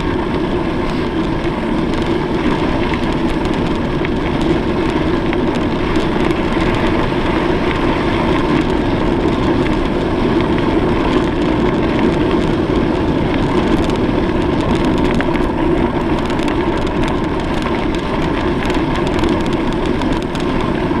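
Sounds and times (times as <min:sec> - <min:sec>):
faint ticks and rattles: 0:00.0 - 0:21.0
wind and road noise: 0:00.0 - 0:21.0.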